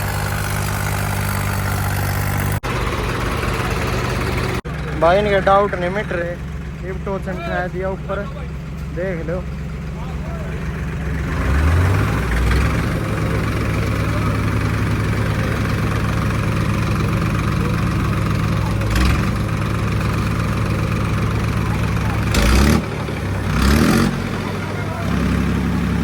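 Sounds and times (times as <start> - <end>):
tractor diesel engines running: 0.0 - 26.0.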